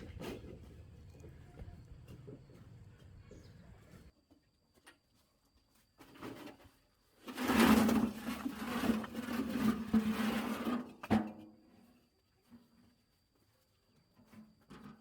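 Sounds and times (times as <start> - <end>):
rough scraping: 7.2 - 10.9.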